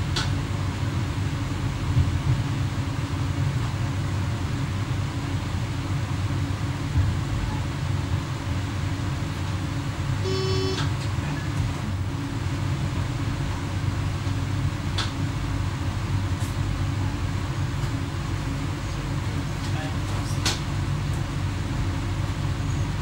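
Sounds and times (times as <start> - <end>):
train cab drone: 0.0 - 23.0
short beep: 10.2 - 10.9.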